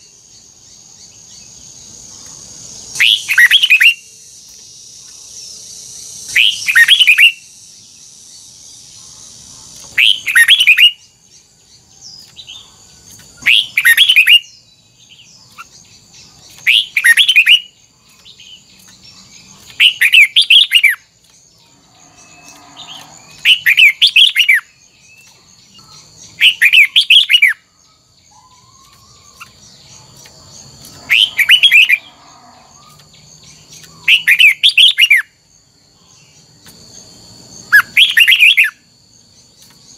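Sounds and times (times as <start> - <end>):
bulbul warbling song: 12.2 - 21.1.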